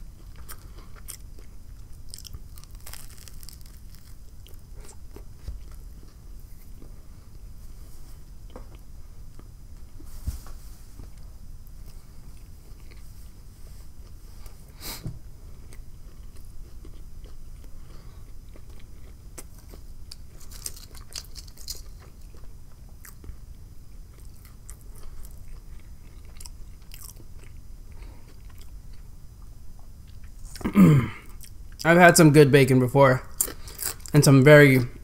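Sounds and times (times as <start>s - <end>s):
potato chips crackling: 2.0s - 5.2s, 20.1s - 22.3s, 33.4s - 34.3s
mouth chewing: 15.7s - 23.4s, 24.1s - 29.0s.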